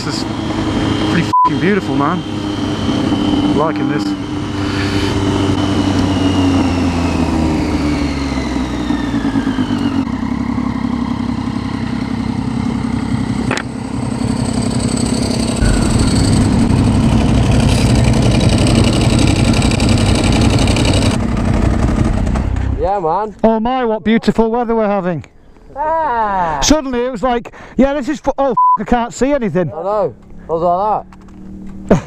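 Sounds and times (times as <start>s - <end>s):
motorcycle engine while riding: 0.0s - 22.8s, 29.8s - 32.0s.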